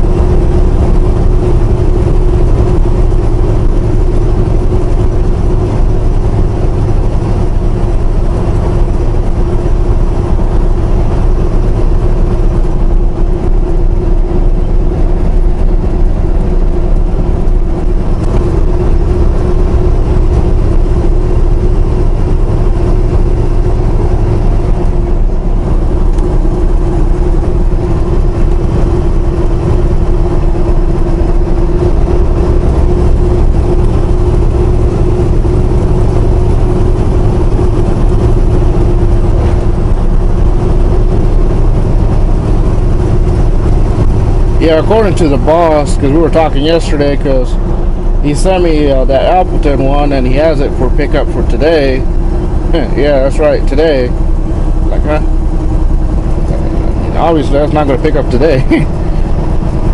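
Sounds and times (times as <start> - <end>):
constant droning tone: 0.0 - 59.9
truck engine and road rumble: 0.0 - 59.9.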